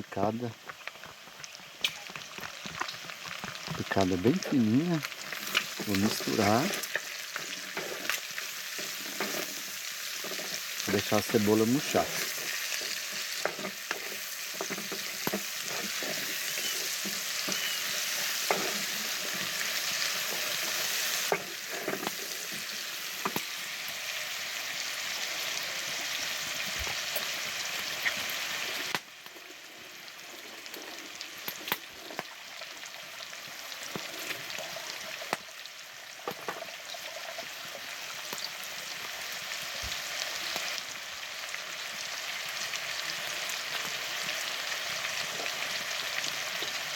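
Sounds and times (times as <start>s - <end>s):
onion and garlic sizzling: 0.0s - 46.9s
spoon scraping a pot: 5.3s - 10.8s, 11.8s - 22.7s.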